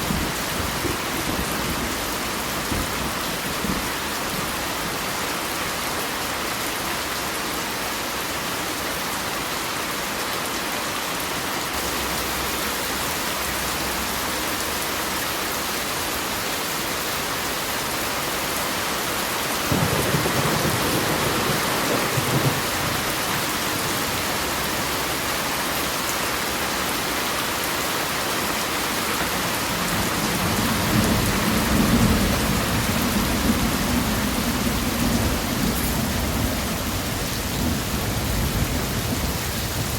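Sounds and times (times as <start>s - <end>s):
heavy rainfall: 0.0s - 39.9s
thunder rumbling: 19.7s - 25.0s, 29.4s - 39.9s.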